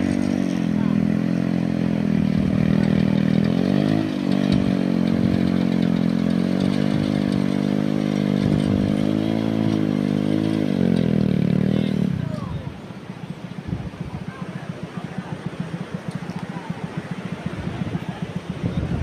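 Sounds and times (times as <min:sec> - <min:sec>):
winch engine running: 0:00.0 - 0:19.0.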